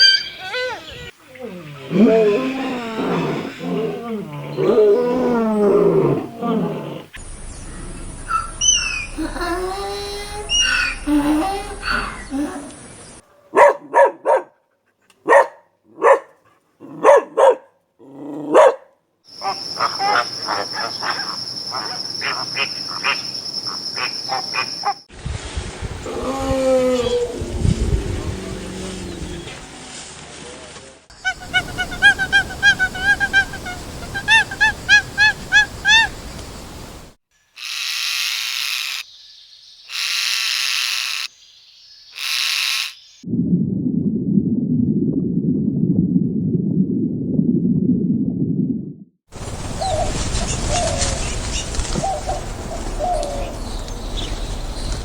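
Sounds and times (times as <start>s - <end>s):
dog barking: 13.3s - 14.6s, 15.2s - 17.8s, 18.5s - 18.9s
bird honking calls: 31.2s - 36.8s
bird hissing: 31.2s - 39.0s, 39.9s - 41.3s, 42.2s - 43.1s.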